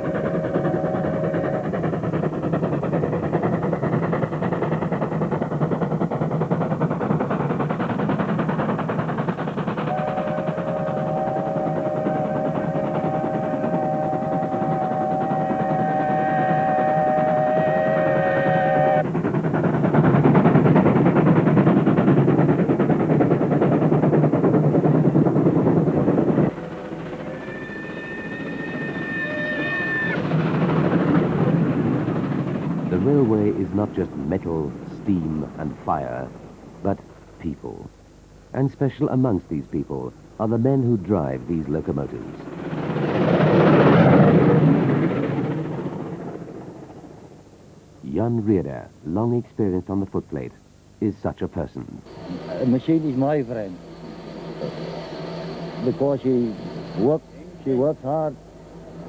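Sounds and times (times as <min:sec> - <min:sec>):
steam train clattering: 0:00.0 - 0:59.0
steady high tone: 0:27.0 - 0:30.3.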